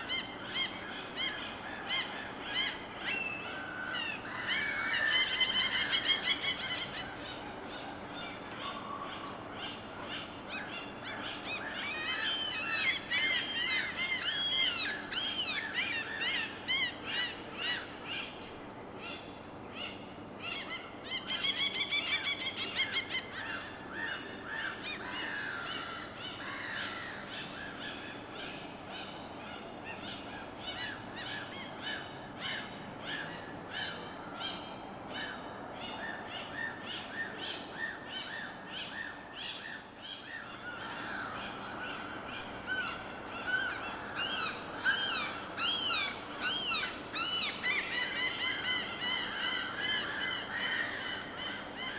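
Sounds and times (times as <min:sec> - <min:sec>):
birds calling: 0:19.1 - 0:51.9.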